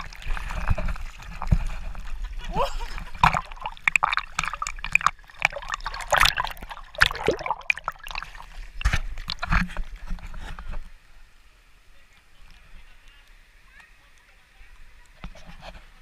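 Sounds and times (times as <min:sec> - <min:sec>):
water splashing in a river: 0:00.0 - 0:10.2
faint steady hiss: 0:00.0 - 0:16.0.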